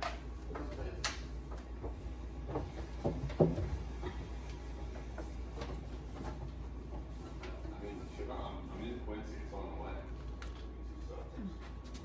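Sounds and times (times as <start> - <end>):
steady low hum: 0.0 - 12.0
groceries knocking and clunking: 1.5 - 7.6.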